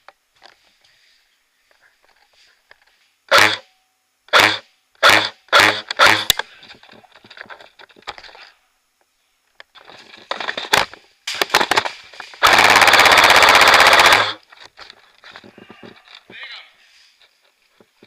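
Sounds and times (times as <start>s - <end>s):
airsoft gun firing: 3.3s - 3.6s, 4.3s - 6.4s, 10.8s - 14.4s.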